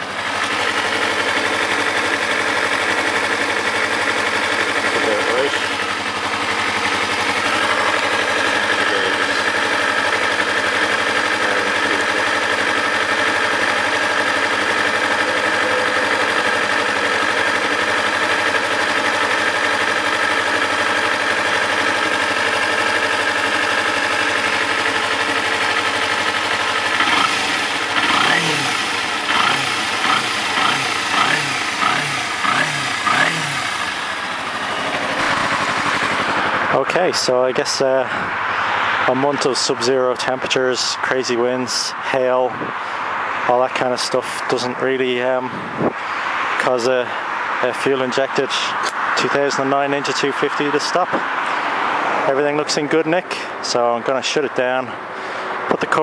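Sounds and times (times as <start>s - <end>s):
motorcycle engine revving: 0.0s - 39.4s
motorcycle engine idling: 0.0s - 48.7s.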